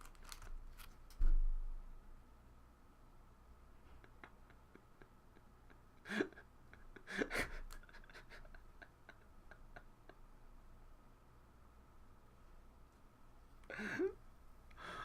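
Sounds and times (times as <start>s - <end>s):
cards and packaging rustling: 0.0s - 1.3s.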